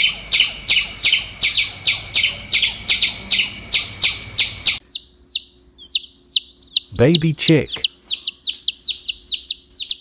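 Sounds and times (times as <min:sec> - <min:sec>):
baby chick peeping: 0:00.0 - 0:10.0
squirrel chirping alarm call: 0:00.0 - 0:10.0.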